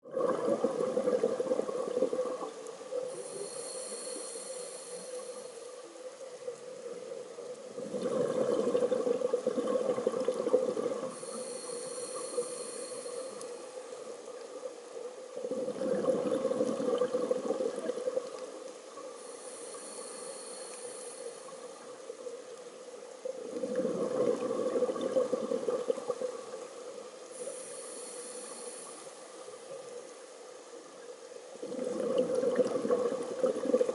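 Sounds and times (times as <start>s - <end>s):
exhaled bubbles rushing: 0.0s - 2.6s, 7.8s - 11.2s, 15.4s - 18.3s, 23.5s - 26.5s, 31.6s - 33.9s
whistling regulator inhale: 3.1s - 5.8s, 11.1s - 13.6s, 19.2s - 21.6s, 27.4s - 29.2s.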